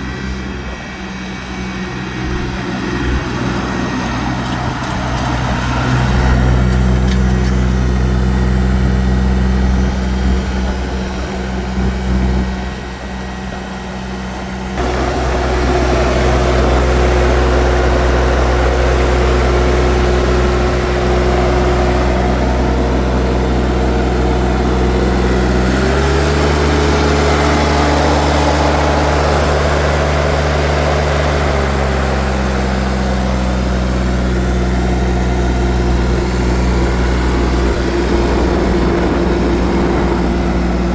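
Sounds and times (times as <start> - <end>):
tractor engine running and revving: 0.0 - 40.9.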